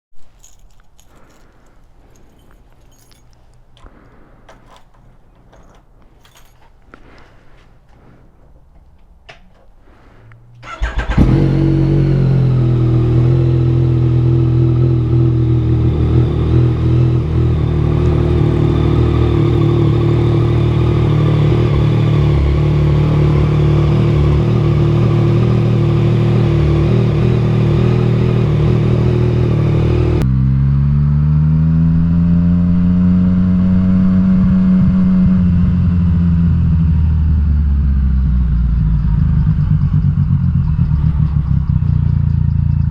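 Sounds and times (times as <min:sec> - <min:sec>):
motorcycle engine starting and idling: 0:10.6 - 0:31.4, 0:32.0 - 0:42.9
motorcycle accelerating: 0:10.6 - 0:42.9.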